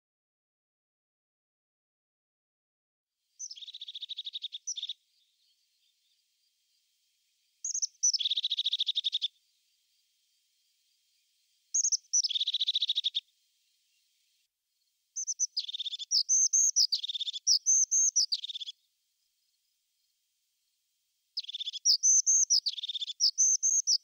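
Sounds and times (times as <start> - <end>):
bird singing with trills: 3.4 - 6.3, 7.6 - 9.4, 11.7 - 13.3, 15.2 - 18.8, 21.4 - 24.0.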